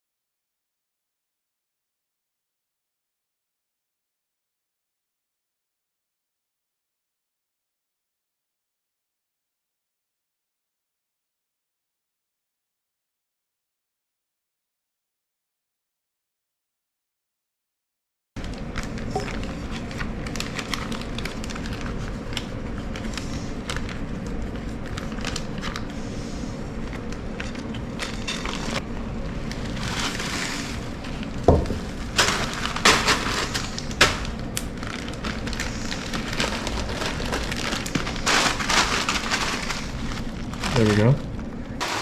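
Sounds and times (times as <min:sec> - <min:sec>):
dried rice cracking and crunching: 0:18.4 - 0:25.9, 0:26.9 - 0:41.2
paper crinkling: 0:18.4 - 0:26.1, 0:26.8 - 0:41.2
steady low hum: 0:18.4 - 0:42.0.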